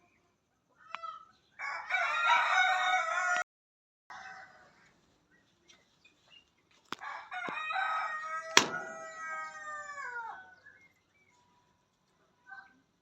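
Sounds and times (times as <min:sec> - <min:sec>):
rooster crowing: 0:01.6 - 0:03.5, 0:04.1 - 0:04.8, 0:07.0 - 0:10.6
sharp clicks: 0:08.6 - 0:08.9.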